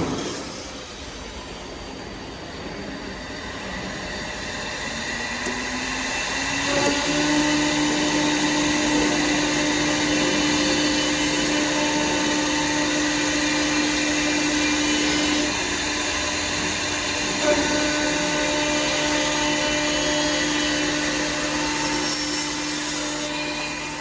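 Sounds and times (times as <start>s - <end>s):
mechanical background noise: 0.0s - 9.8s
wood lathe motor hum: 2.1s - 24.0s.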